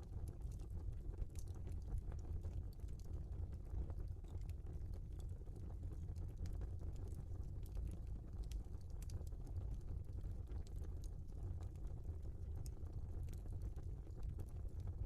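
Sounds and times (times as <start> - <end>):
fire crackles and snaps: 0.0 - 15.0
low rumble of fire: 0.0 - 15.0.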